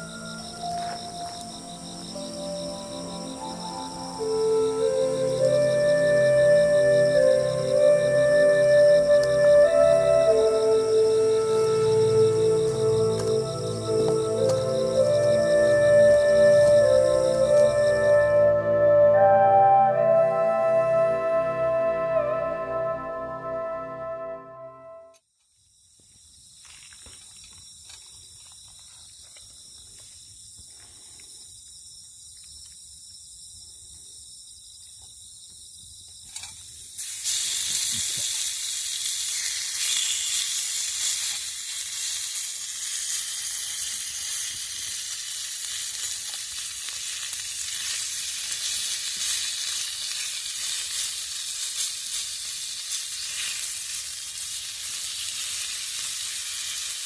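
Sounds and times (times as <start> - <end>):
food sizzling: 0.0 - 20.6, 37.0 - 57.0.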